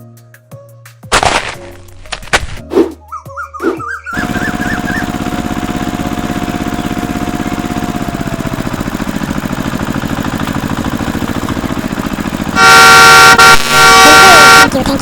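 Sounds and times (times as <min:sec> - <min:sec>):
small engine idling: 0:03.3 - 0:15.0.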